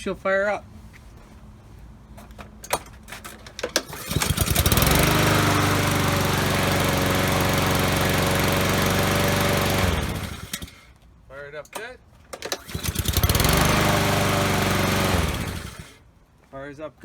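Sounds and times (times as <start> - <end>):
lawnmower engine starting and running: 3.2 - 11.0, 11.7 - 16.1.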